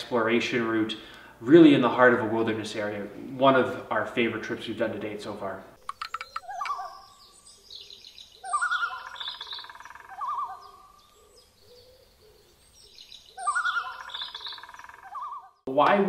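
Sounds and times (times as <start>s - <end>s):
whistled bird calls: 6.0s - 15.6s.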